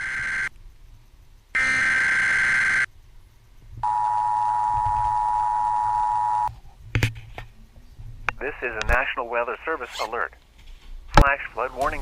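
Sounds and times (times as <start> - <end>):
screechy digital data burst: 0.0 - 0.5, 1.6 - 2.9
two-tone attention signal: 3.8 - 6.5.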